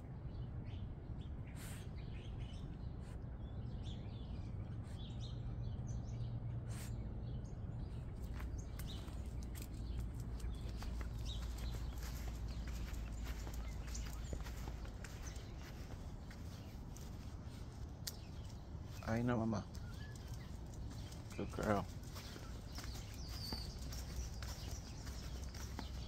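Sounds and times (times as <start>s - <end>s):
low background rumble: 0.0s - 26.0s
small birds chirping: 0.0s - 26.0s
light clicks: 18.0s - 18.6s.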